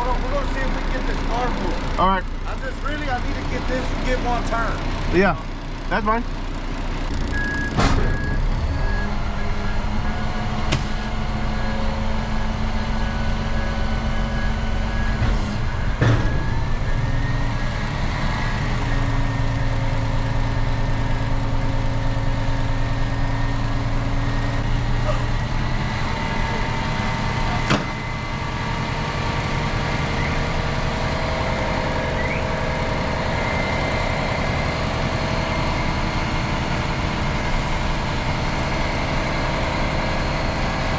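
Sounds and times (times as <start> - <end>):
truck engine running: 0.0 - 40.9
repeating reversing beep: 7.2 - 10.4, 11.5 - 19.9.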